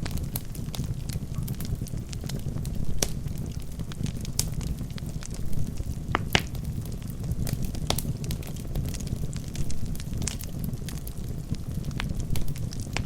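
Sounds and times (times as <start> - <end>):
burning logs crackling and popping: 0.0 - 13.0
flames rumbling: 0.0 - 13.0.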